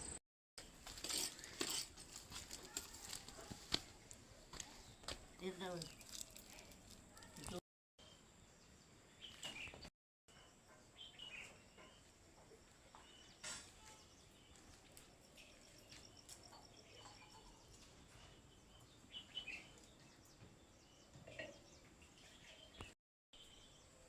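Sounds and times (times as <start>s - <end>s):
bird chirps: 8.0s - 24.0s.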